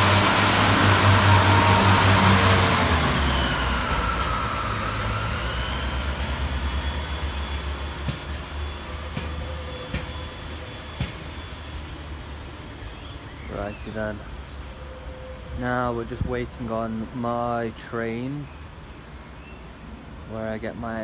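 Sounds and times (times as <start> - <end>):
diesel railcar engine drone: 0.0 - 21.0.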